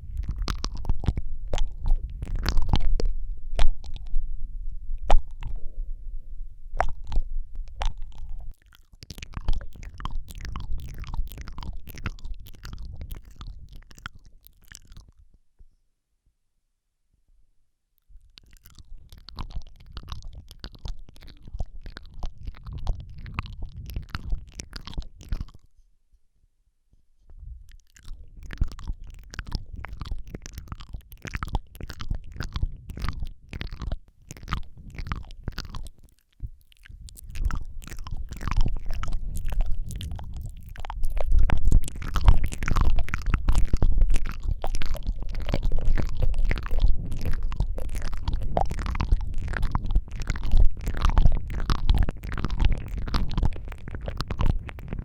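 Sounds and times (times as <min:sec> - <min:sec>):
wet lip smacks: 0:00.0 - 0:04.2, 0:05.0 - 0:05.7, 0:06.8 - 0:15.2, 0:18.2 - 0:25.7, 0:27.7 - 0:55.0
tongue clicks: 0:00.0 - 0:04.3, 0:05.0 - 0:05.8, 0:06.7 - 0:15.3, 0:18.0 - 0:25.8, 0:27.7 - 0:55.0.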